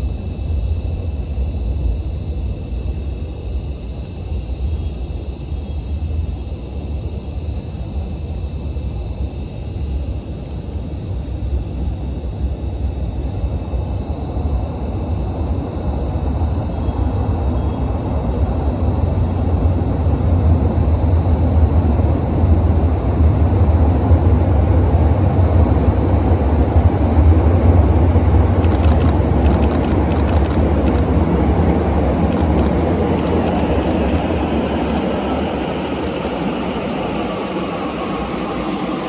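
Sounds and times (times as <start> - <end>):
electric train rumbling: 16.7 - 39.0.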